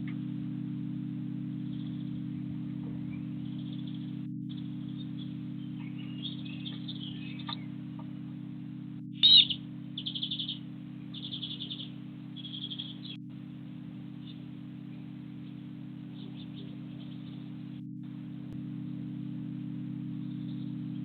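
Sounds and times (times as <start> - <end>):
steady low hum: 0.0 - 21.0
small birds chirping: 1.5 - 21.0
bird trills: 1.7 - 8.4, 9.2 - 13.3, 14.0 - 17.8, 20.2 - 21.0.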